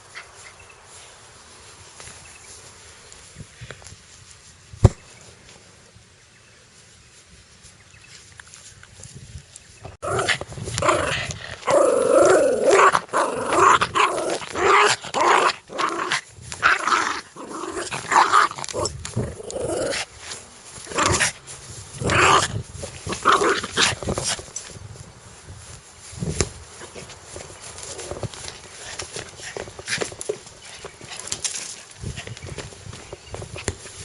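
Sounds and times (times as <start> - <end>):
dog growling aggressively: 10.0 - 20.1, 20.8 - 21.4, 22.0 - 24.4.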